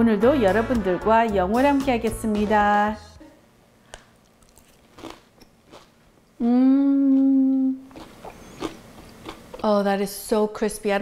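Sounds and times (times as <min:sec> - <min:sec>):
crisp crunches of chewing: 0:04.2 - 0:05.9, 0:07.1 - 0:09.4
woman humming mmm: 0:06.4 - 0:08.6.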